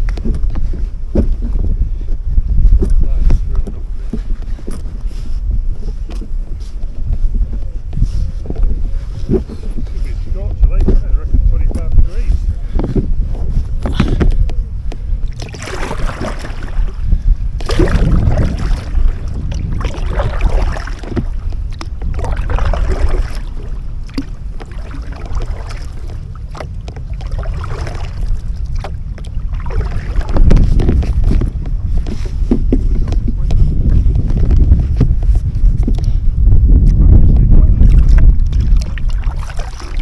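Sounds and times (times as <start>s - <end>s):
paddle strokes splashing water: 0.0s - 40.0s
wind buffeting microphone: 0.0s - 40.0s.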